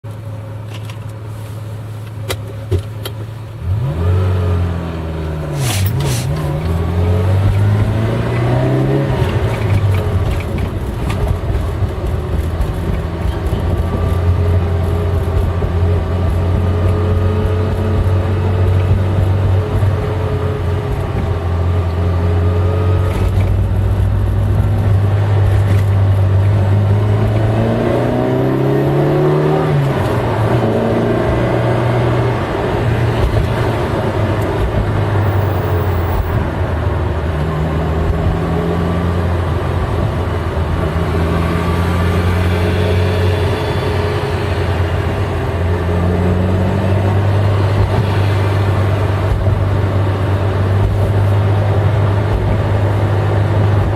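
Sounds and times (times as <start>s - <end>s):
car engine droning: 0.0s - 53.9s.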